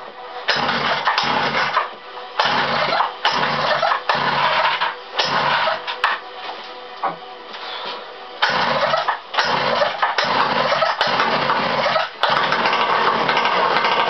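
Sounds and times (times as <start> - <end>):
two-stroke engine surging: 8.4 - 14.0.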